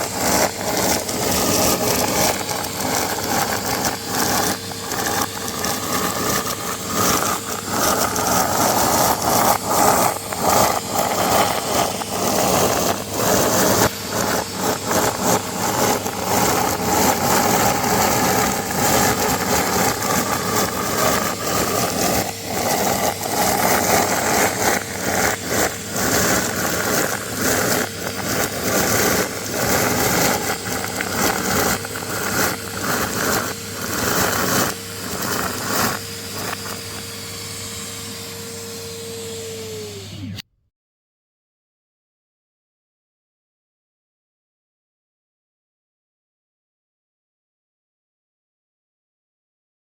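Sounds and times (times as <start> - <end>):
confetti rattling through nozzle: 0.0 - 37.2
vacuum cleaner motor whining: 0.0 - 40.6.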